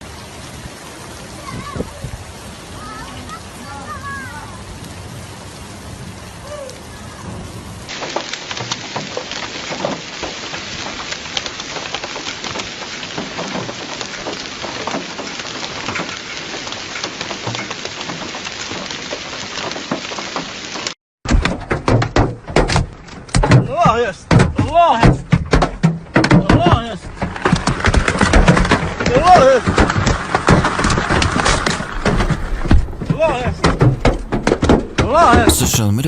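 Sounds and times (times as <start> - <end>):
hailstones striking hard surfaces: 7.9 - 20.9, 24.3 - 35.1
heavy rain hissing: 35.5 - 36.0.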